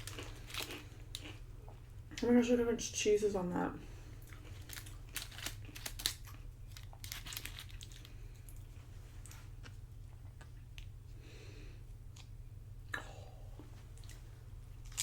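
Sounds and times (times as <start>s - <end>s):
tortilla chips crunching: 0.0s - 1.4s, 4.2s - 9.8s, 14.8s - 15.0s
chewing: 0.0s - 1.8s.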